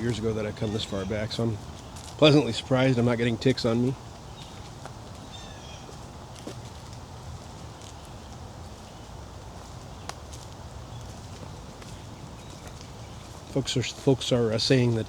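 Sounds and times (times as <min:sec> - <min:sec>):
footsteps on woodland trail: 0:00.0 - 0:15.0
steady outdoor hiss: 0:00.0 - 0:15.0.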